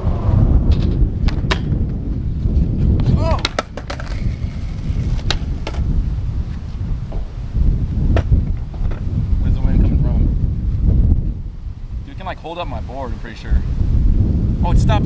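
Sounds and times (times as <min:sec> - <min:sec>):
wind rumbling on microphone: 0:00.0 - 0:15.0
skateboard clacks: 0:01.2 - 0:02.0, 0:03.0 - 0:05.9, 0:08.1 - 0:09.0.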